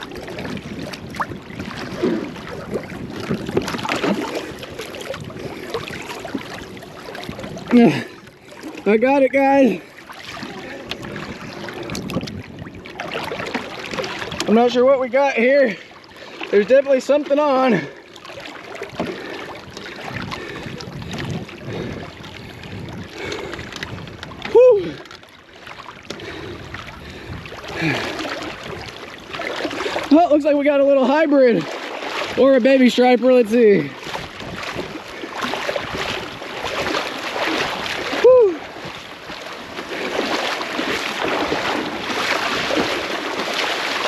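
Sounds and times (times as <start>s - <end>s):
wind on microphone: 0.0s - 8.9s, 9.7s - 14.8s, 18.8s - 25.2s, 26.1s - 30.1s, 33.8s - 44.0s
water splashing around a boat: 0.0s - 44.0s.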